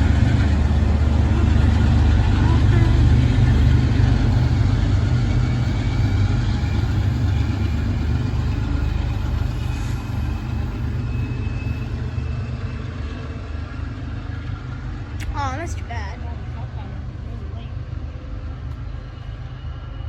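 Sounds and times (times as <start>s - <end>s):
diesel locomotive engine rumbling: 0.0s - 20.0s
faint high whining tones: 3.5s - 13.8s.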